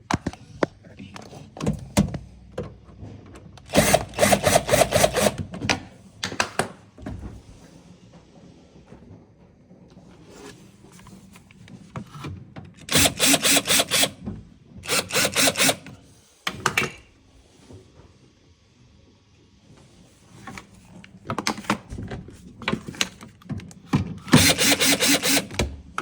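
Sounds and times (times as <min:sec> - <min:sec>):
hand tool rasping strokes: 0:14.9 - 0:15.9, 0:24.4 - 0:25.6.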